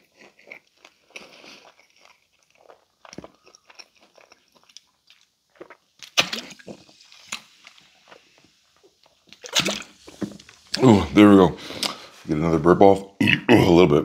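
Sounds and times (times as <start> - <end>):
chewing and crunching: 0.0 - 10.9.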